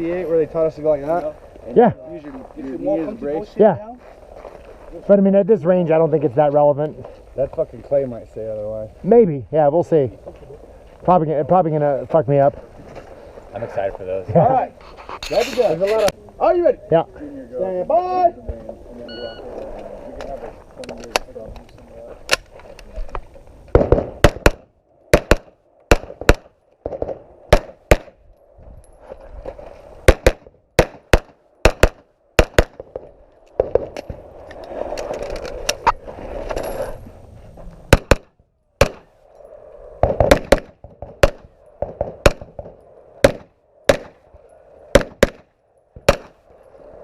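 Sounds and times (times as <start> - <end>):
rifle shots: 23.7 - 28.2, 30.0 - 33.9, 37.9 - 39.1, 40.0 - 44.2, 44.9 - 46.4.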